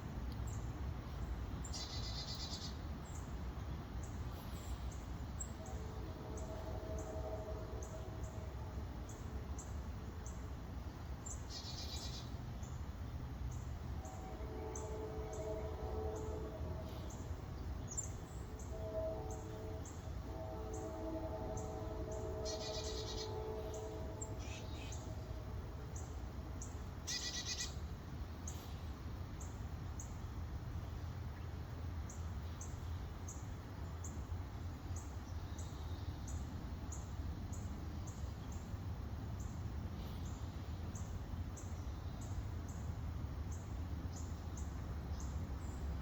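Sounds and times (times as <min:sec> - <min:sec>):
faint high tick: 0:00.2 - 0:00.5
birds chirping: 0:14.0 - 0:25.5.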